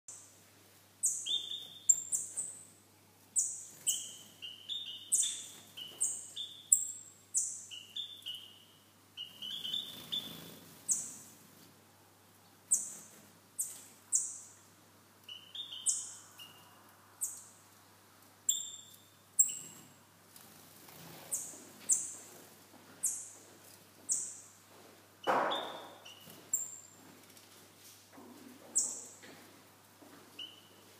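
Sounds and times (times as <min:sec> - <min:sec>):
high-pitched bird chirps: 0:01.0 - 0:02.5, 0:03.4 - 0:11.2, 0:15.3 - 0:17.4, 0:18.5 - 0:19.8, 0:30.4 - 0:30.8.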